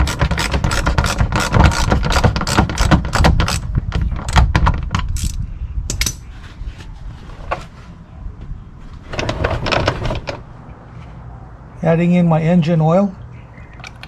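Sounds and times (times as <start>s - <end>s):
metal tools clattering: 5.2s - 6.3s.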